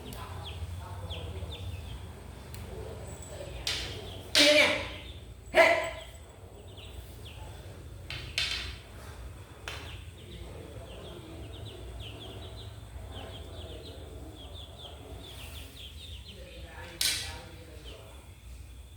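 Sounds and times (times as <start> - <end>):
chick peeping: 9.7 - 16.8.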